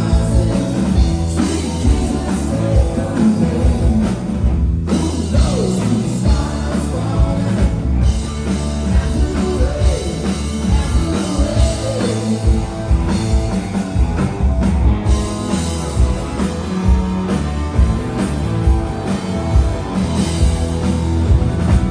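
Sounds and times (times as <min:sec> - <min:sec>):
live rock band playing: 0:00.0 - 0:21.9
person singing: 0:08.9 - 0:12.7.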